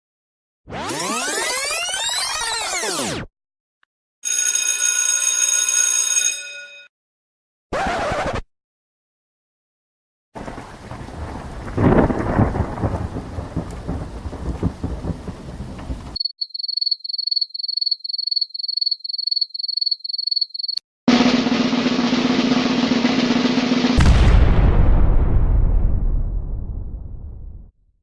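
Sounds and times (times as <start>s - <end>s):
rumbling noise: 10.4s - 16.2s, 21.1s - 27.7s.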